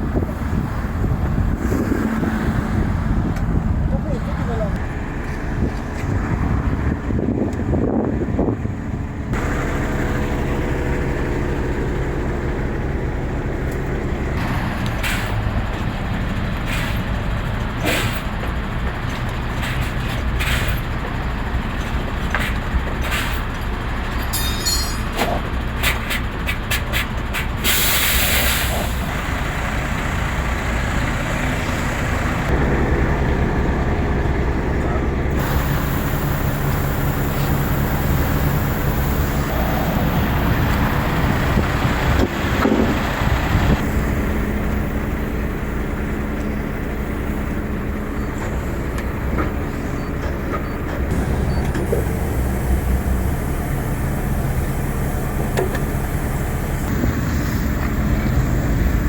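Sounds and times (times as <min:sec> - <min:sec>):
diesel truck engine idling: 0:06.7 - 0:59.0
air brakes hissing: 0:15.0 - 0:15.5, 0:16.6 - 0:17.2, 0:17.8 - 0:18.4, 0:20.4 - 0:20.8, 0:24.3 - 0:29.1, 0:35.3 - 0:41.6, 0:49.8 - 0:58.6.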